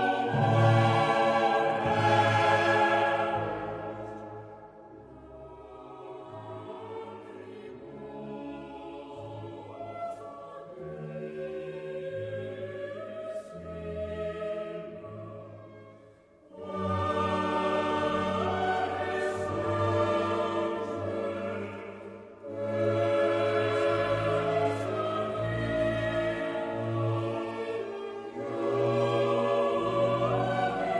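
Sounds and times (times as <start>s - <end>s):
choir holding long notes: 0.0s - 30.9s.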